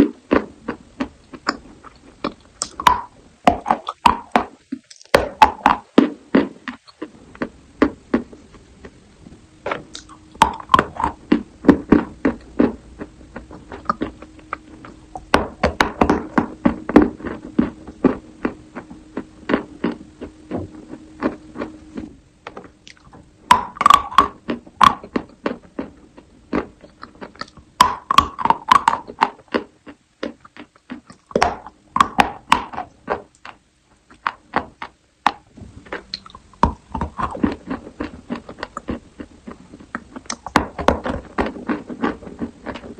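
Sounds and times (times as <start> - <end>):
chalk being bitten and chewed: 9.8 - 15.3, 22.9 - 42.9.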